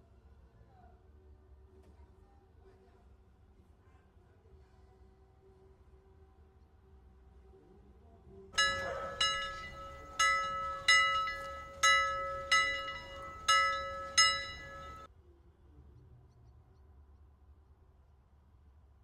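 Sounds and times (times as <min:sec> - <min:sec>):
bell-like timer alarm chime: 0:08.6 - 0:15.1.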